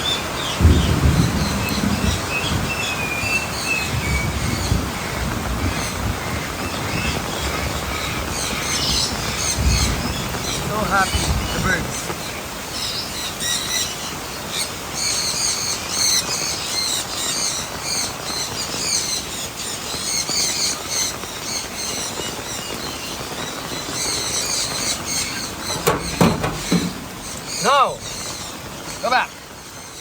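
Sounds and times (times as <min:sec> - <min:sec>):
birds chirping: 0:00.0 - 0:30.0
hard rain falling: 0:00.0 - 0:30.0
sharp knock: 0:25.7 - 0:28.2.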